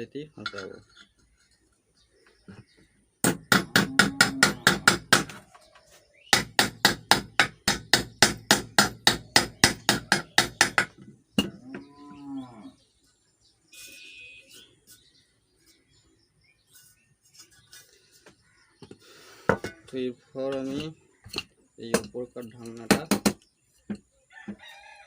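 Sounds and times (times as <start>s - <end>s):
hammer tapping metal: 3.2s - 5.4s, 6.4s - 11.5s.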